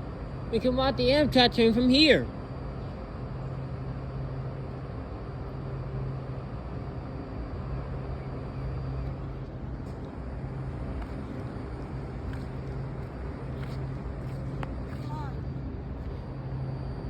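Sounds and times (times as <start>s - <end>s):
faint high whine: 0.0s - 17.0s
low mechanical drone: 0.0s - 17.0s.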